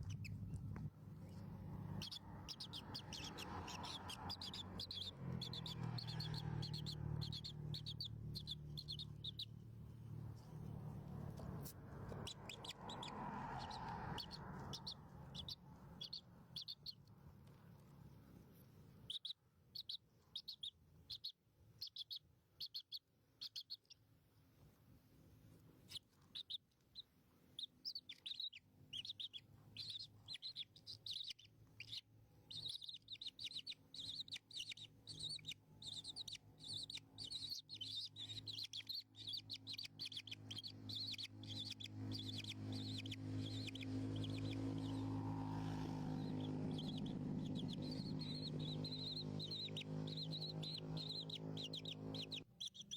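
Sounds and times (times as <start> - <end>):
low steady hum: 0.0 - 4.3
baby birds chirping: 0.0 - 17.1, 19.0 - 24.0, 25.9 - 52.9.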